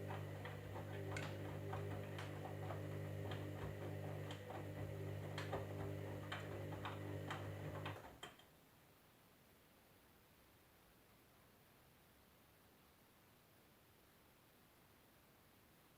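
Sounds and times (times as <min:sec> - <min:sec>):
washing machine electric hum: 0:00.0 - 0:08.3.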